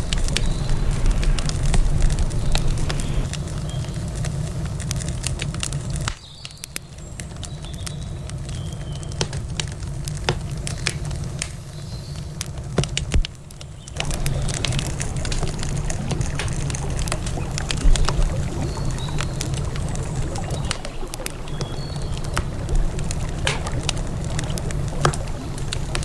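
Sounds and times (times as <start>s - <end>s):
low steady rumble: 0.0s - 4.6s, 14.0s - 26.0s
wood campfire crackling: 0.0s - 26.0s.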